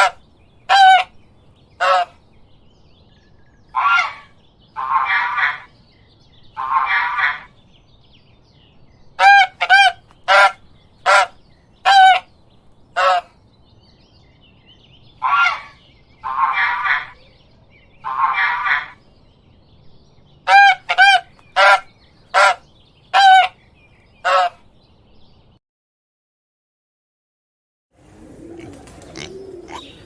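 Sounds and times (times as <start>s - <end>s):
goose honking: 0.0s - 1.1s, 1.8s - 2.1s, 9.2s - 12.2s, 20.5s - 22.6s, 23.2s - 23.5s, 24.3s - 24.6s.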